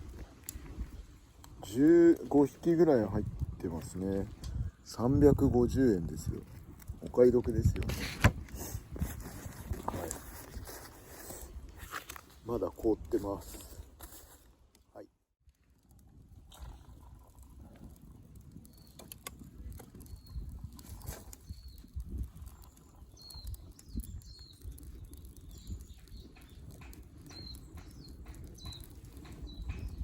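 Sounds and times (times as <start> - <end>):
wind rumbling on microphone: 0.0 - 14.0, 15.6 - 30.0
campfire crackling: 0.0 - 30.0
high bird chirps: 25.4 - 30.0.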